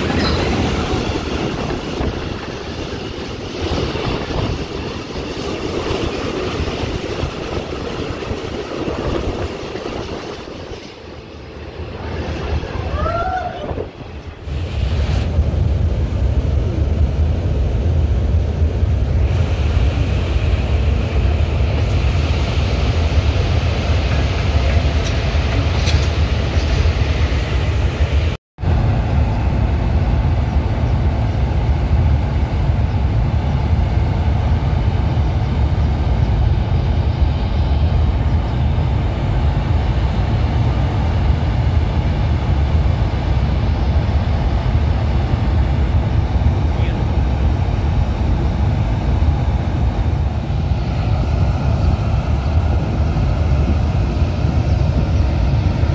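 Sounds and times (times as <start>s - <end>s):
train rolling in rumble: 0.0s - 55.9s
train rushing by: 0.0s - 55.9s
wind rumble on microphone: 0.0s - 55.9s.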